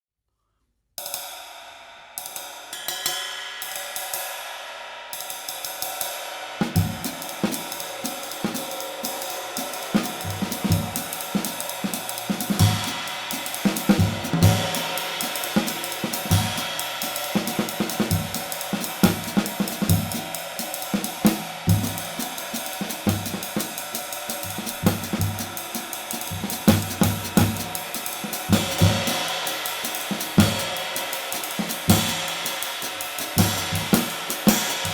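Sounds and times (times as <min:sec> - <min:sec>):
snare drum hits: 0:20.9 - 0:34.9.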